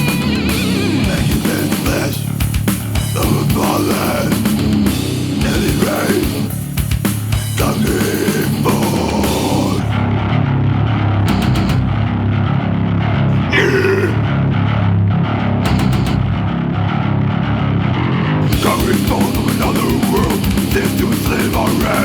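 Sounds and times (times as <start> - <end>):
fast dense drumming: 0.0 - 9.9, 18.5 - 22.0
distorted electric guitars: 0.0 - 22.0.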